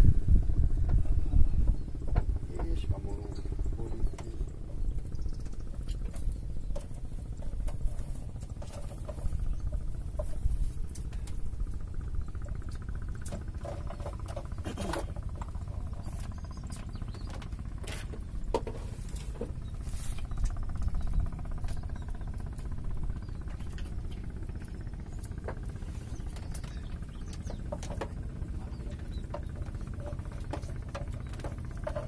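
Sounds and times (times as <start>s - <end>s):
wind on microphone: 0.0s - 12.4s.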